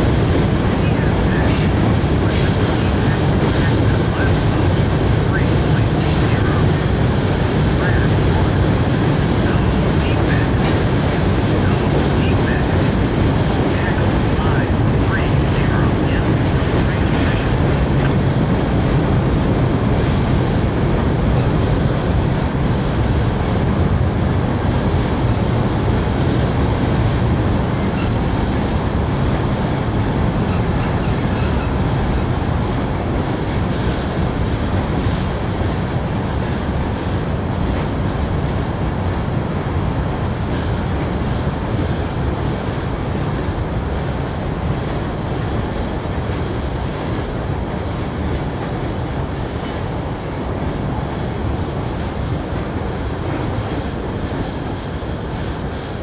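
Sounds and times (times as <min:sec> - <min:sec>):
train wheels rumbling on rails: 0:00.0 - 0:56.0
clatter over rail joints: 0:16.5 - 0:19.0
faint high wheel squeal: 0:30.1 - 0:33.1.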